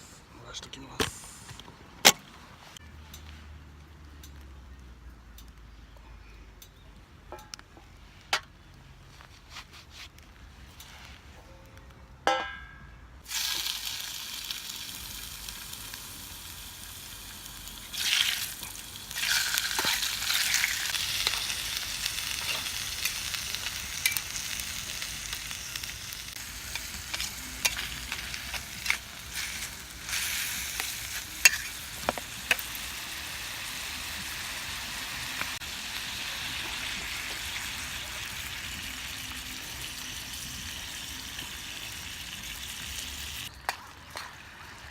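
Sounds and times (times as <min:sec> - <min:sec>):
meat sizzling in a frying pan: 0:13.3 - 0:43.5.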